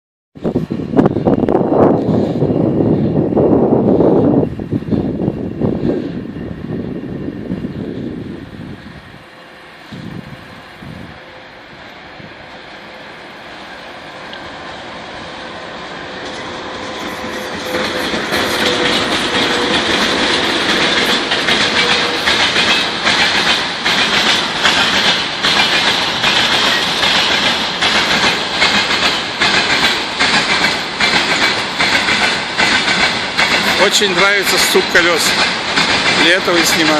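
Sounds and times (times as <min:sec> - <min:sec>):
train wheels clattering: 0:15.2 - 0:36.9.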